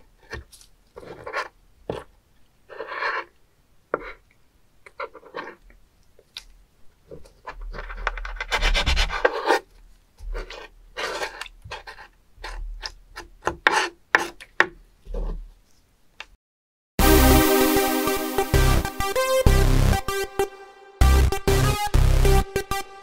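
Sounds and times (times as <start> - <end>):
knife scraping on wooden board: 0.2 - 2.1, 2.7 - 4.2, 4.9 - 5.7, 7.1 - 15.5.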